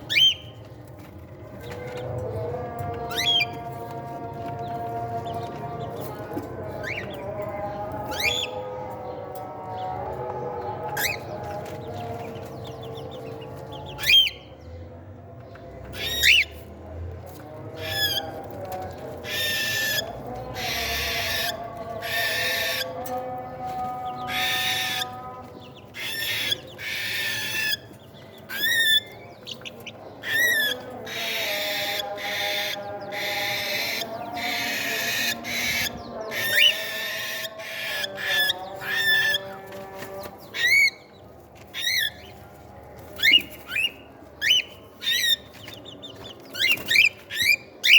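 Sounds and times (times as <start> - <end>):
raspy chick begging calls: 30.2 - 39.4.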